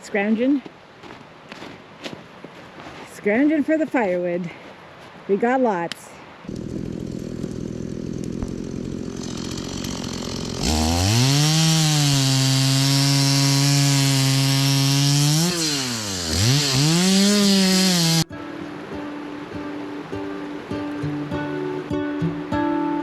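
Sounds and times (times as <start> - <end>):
two-stroke chainsaw revving: 6.5 - 18.3.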